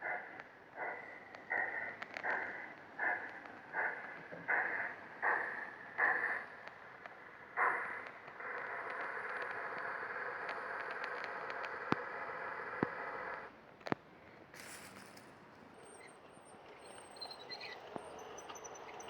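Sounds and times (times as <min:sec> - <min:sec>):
model train running hiss: 0:00.8 - 0:13.5.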